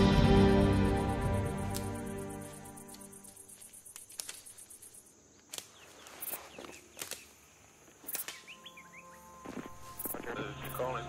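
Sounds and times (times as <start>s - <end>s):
birds or insects chirping: 0.0s - 11.0s
sharp cracks: 3.9s - 5.9s, 6.9s - 7.4s.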